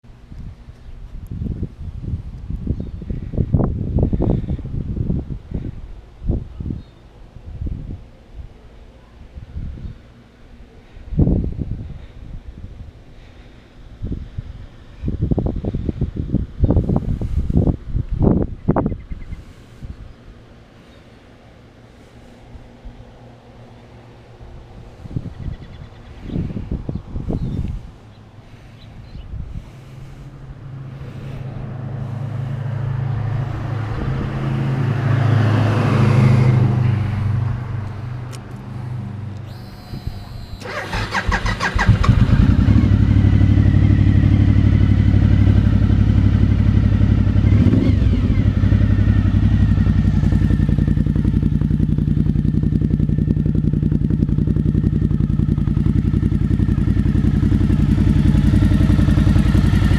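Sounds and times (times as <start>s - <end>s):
motorcycle engine starting and idling: 38.3s - 59.9s.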